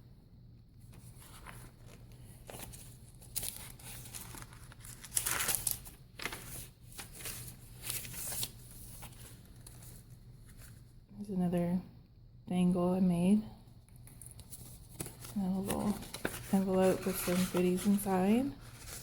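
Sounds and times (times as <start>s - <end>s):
paper rustling and crinkling: 0.8s - 10.9s, 14.0s - 19.0s.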